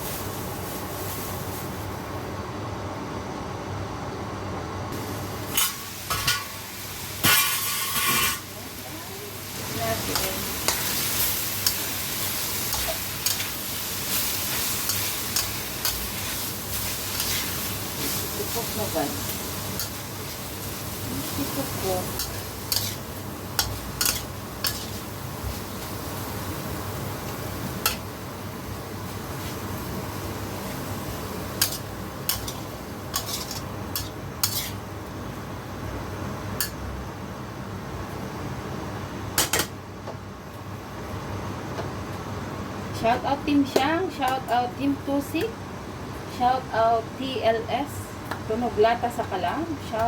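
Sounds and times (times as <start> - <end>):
food sizzling in a hot pan: 0.0 - 2.3, 5.0 - 35.2
spatula scraping a pan: 7.3 - 8.4, 22.2 - 25.0, 31.6 - 34.8.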